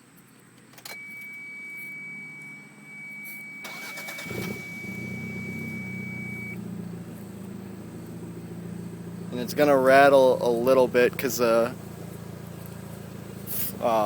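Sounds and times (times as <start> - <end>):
car engine cranking and idling: 0.1 - 14.0
thin high beep: 1.0 - 6.6.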